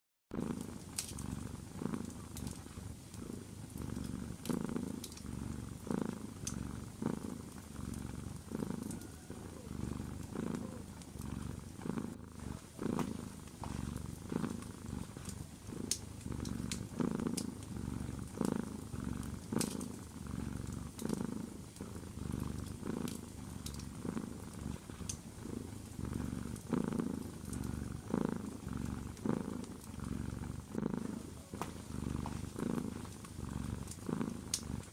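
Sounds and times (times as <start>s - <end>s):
cat purring: 0.3s - 34.9s
wood fire crackling: 12.4s - 25.2s.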